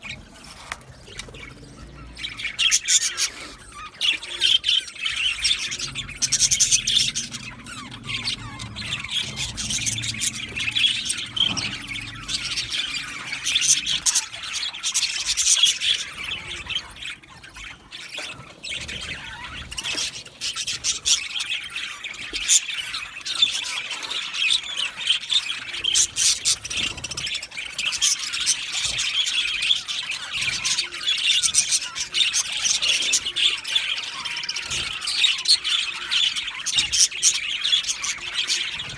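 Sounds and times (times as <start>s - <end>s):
budgerigars chattering and squawking: 0.0s - 38.9s
low rumble: 5.4s - 14.1s.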